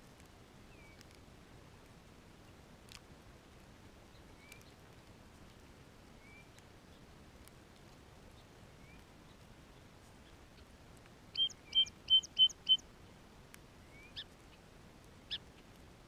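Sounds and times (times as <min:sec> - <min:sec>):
faint clicks: 0:00.0 - 0:01.2, 0:02.8 - 0:03.6, 0:04.2 - 0:05.6, 0:13.4 - 0:14.3
steady low hiss: 0:00.0 - 0:16.0
faint bird chirps: 0:06.2 - 0:07.0, 0:08.3 - 0:10.4, 0:11.3 - 0:12.9, 0:13.8 - 0:14.6.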